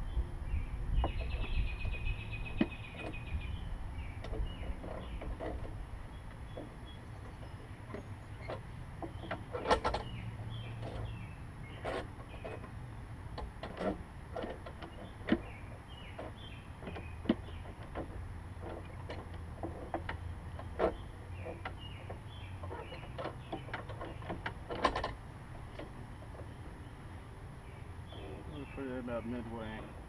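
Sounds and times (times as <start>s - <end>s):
clicks and knocks of mower control: 11.8s - 26.6s.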